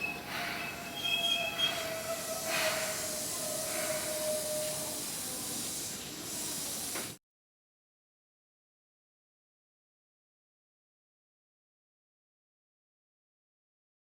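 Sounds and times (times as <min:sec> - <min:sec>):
high wheel squeal: 0:00.0 - 0:05.6
electric train running: 0:00.0 - 0:07.2.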